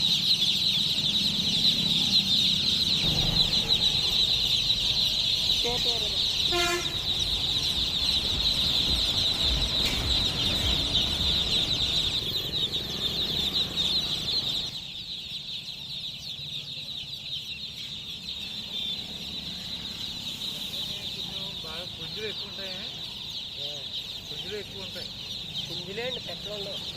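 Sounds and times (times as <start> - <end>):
chicks peeping: 0.0 - 26.9
low rumble: 2.9 - 14.7.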